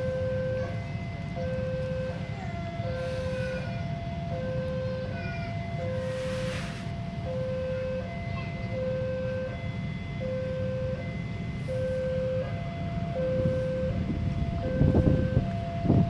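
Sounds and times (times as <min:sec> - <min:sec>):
steady low rumble: 0:00.0 - 0:08.3, 0:09.0 - 0:16.0
level crossing two-tone alarm: 0:00.0 - 0:16.0.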